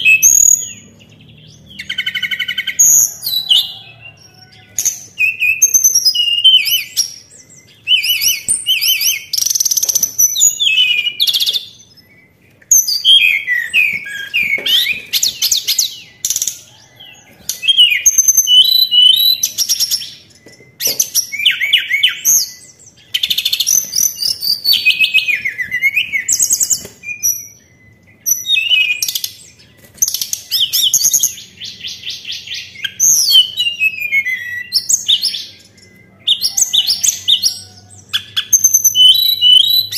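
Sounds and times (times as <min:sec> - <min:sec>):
songbird chirps and trills: 0:00.0 - 0:39.9.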